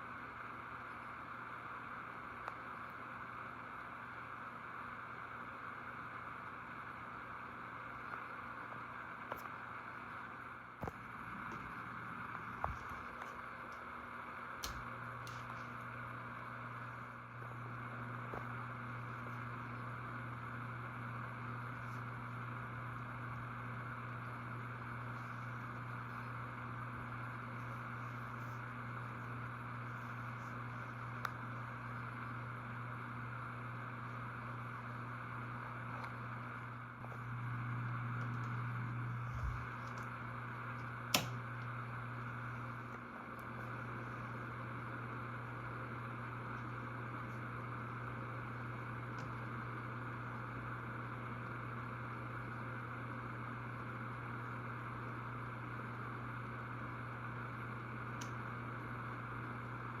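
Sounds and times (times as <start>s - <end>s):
ceiling fan motor hum: 0.0s - 60.0s
fan click: 14.6s - 16.0s, 39.3s - 41.8s, 58.1s - 58.5s.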